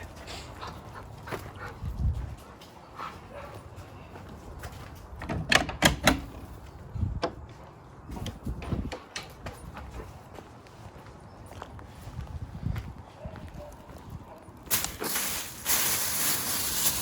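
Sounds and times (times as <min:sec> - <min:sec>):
dog barking: 0:03.3 - 0:03.6, 0:13.2 - 0:14.5.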